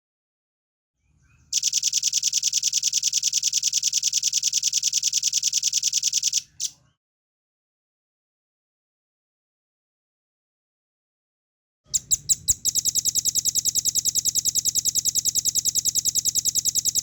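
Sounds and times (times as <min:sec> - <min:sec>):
bird rapid trill: 0:12.0 - 0:17.0.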